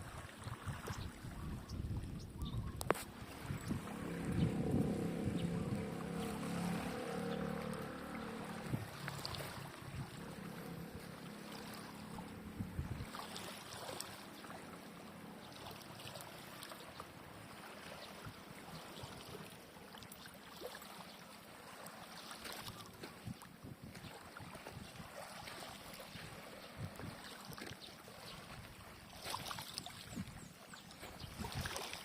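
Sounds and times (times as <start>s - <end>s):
small waves lapping: 0.0s - 32.0s
low hum: 3.1s - 13.1s.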